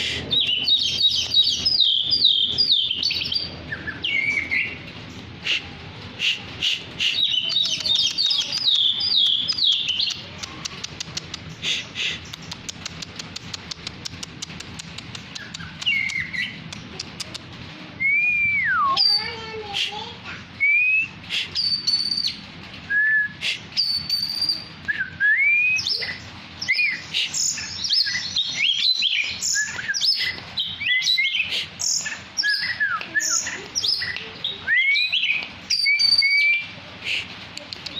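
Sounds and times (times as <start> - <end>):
bird singing whistled song: 0.3 - 4.8, 18.0 - 19.2, 20.6 - 36.7.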